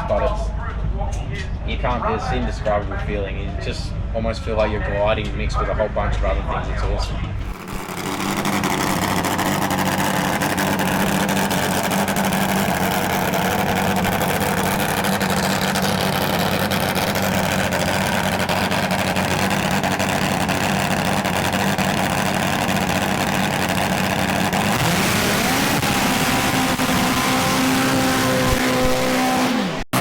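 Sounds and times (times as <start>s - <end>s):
drag racing engine idling: 7.4s - 30.0s.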